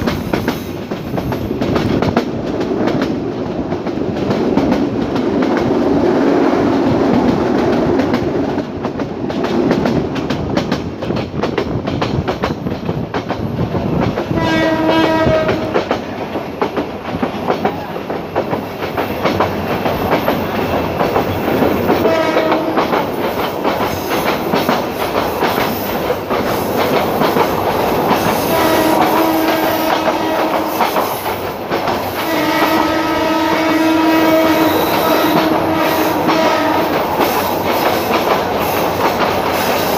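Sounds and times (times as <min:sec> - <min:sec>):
clickety-clack of train wheels: 0:00.0 - 0:39.9
train rumbling on track: 0:00.0 - 0:39.9
train horn blasts: 0:14.4 - 0:16.0, 0:22.0 - 0:23.0, 0:28.4 - 0:31.0, 0:32.2 - 0:37.0.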